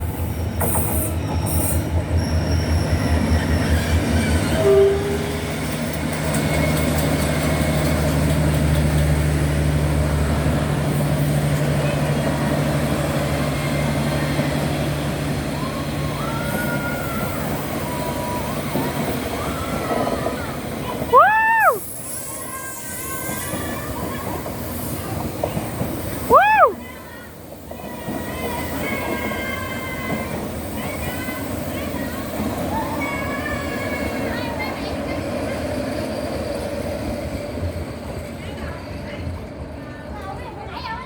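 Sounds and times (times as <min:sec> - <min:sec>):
train engine drone: 0:00.0 - 0:41.0
wheels clacking over rail joints: 0:03.0 - 0:21.2, 0:22.8 - 0:26.3
brief tone: 0:04.4 - 0:05.4.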